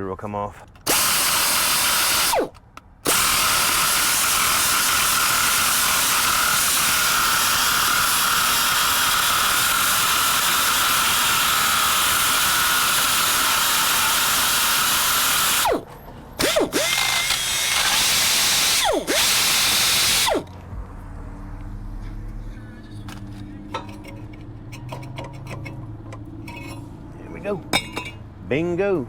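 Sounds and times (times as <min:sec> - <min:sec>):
angle grinder whining: 0:00.9 - 0:20.5.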